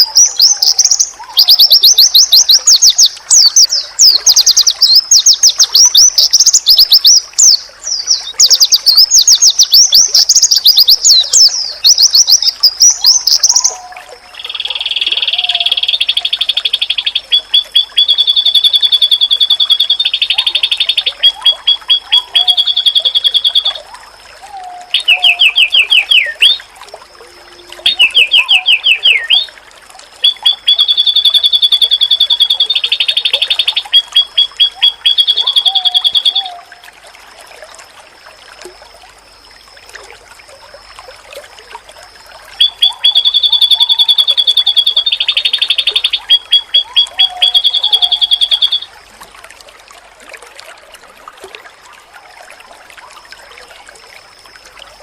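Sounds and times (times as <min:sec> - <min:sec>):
bird high rapid trills: 0:42.6 - 0:48.9
faint lower chirps: 0:42.6 - 0:49.0.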